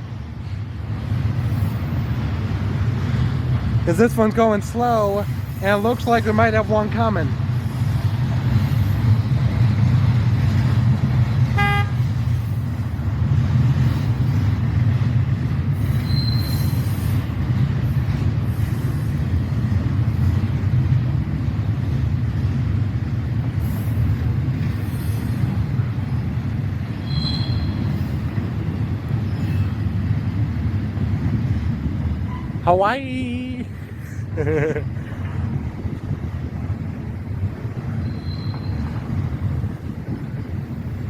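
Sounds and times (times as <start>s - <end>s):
train rumbling past: 0.0s - 41.0s
high wheel squeal: 4.9s - 6.5s, 15.7s - 17.4s, 27.0s - 28.6s, 29.2s - 30.0s, 37.9s - 39.1s
train horn toot: 11.5s - 12.2s, 27.0s - 27.8s.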